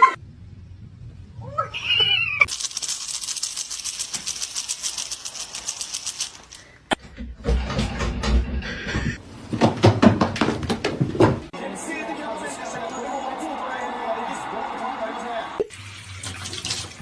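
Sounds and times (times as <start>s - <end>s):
fast rasping rattle: 2.5s - 6.8s.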